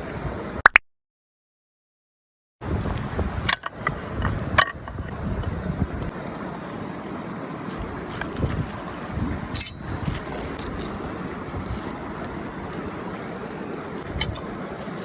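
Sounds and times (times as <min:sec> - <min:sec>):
wind buffeting microphone: 0:02.6 - 0:15.0
river flowing: 0:06.1 - 0:15.0.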